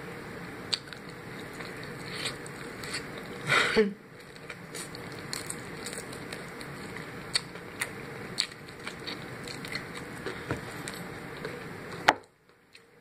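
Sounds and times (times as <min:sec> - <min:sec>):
steady background hum: 0:00.0 - 0:13.0
crunchy food crunching: 0:00.7 - 0:03.5, 0:04.2 - 0:12.0
chewing and lip smacks: 0:04.2 - 0:11.6.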